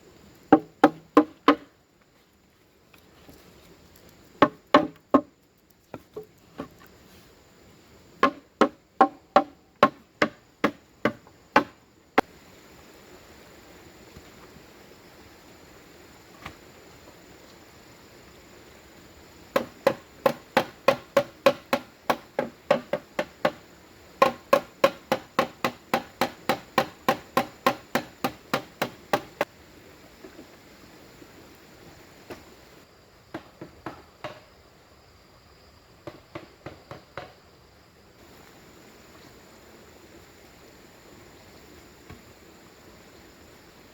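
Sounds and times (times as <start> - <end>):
tool striking bamboo: 0.5 - 1.7, 4.4 - 5.3, 8.2 - 11.7, 19.6 - 23.6, 24.2 - 29.5.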